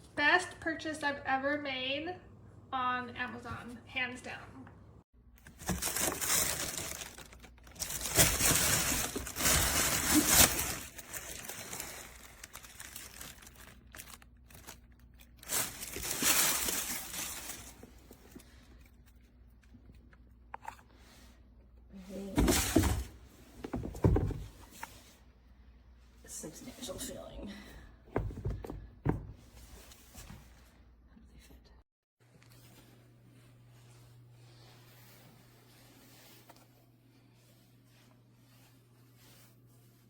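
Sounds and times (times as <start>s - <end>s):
rustling and crinkling handling: 5.4s - 25.3s.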